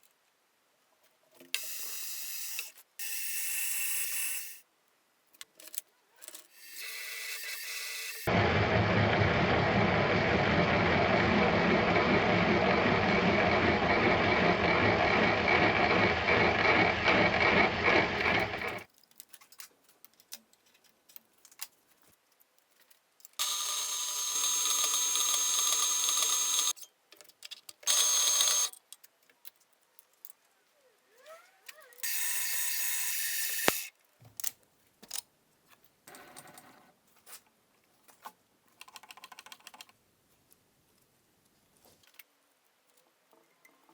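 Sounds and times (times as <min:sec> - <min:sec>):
motor with thin high whine: 0:07.7 - 0:18.8, 0:23.4 - 0:26.7, 0:27.9 - 0:28.7
power tool machining noise: 0:08.3 - 0:18.8.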